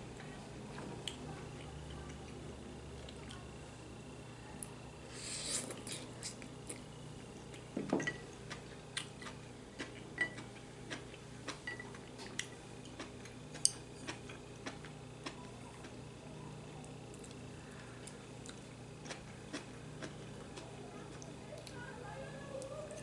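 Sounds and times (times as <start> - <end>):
chewing clicks: 8.4 - 16.0.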